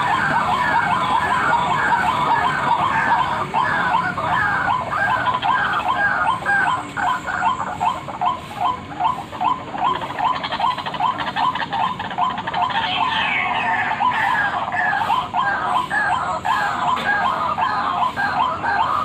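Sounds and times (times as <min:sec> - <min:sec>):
waterhen call: 0:00.0 - 0:19.0.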